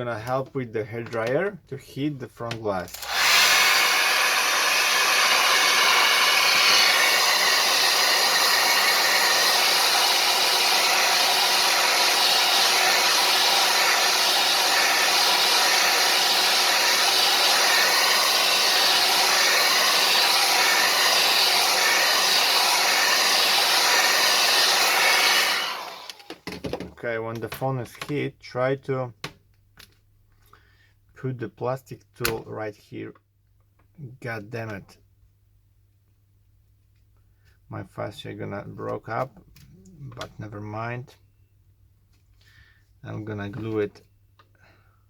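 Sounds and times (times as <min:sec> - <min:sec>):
hair dryer running: 0:02.9 - 0:26.5.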